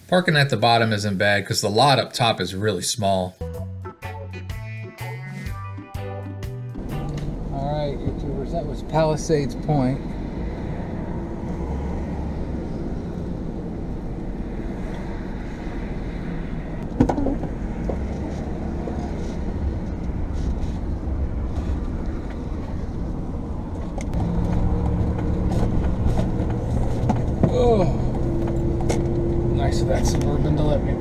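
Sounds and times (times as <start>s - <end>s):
vehicle engine running: 6.8s - 31.0s.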